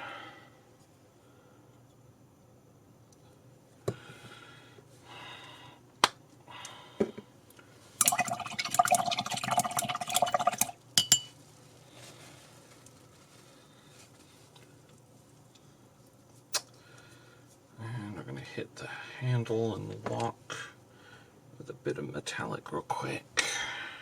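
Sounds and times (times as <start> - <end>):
brush clinking against water pot: 10.2 - 11.4.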